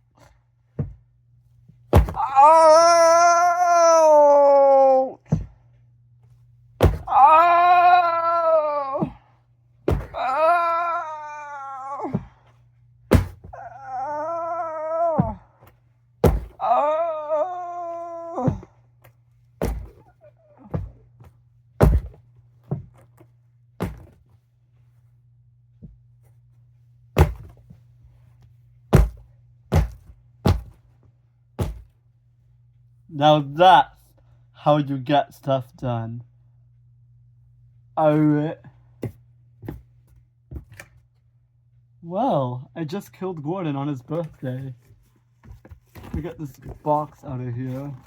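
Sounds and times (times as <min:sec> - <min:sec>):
thuds: 0:00.7 - 0:01.0, 0:01.9 - 0:02.3, 0:05.2 - 0:05.6, 0:06.8 - 0:07.2, 0:09.9 - 0:10.3, 0:13.1 - 0:13.6, 0:16.2 - 0:16.6, 0:19.6 - 0:23.1, 0:23.8 - 0:24.2, 0:27.2 - 0:27.8, 0:28.9 - 0:30.9, 0:31.6 - 0:32.0
person crying out in pain: 0:02.1 - 0:05.4, 0:07.0 - 0:09.2, 0:10.0 - 0:12.4, 0:13.5 - 0:15.5, 0:16.5 - 0:18.7.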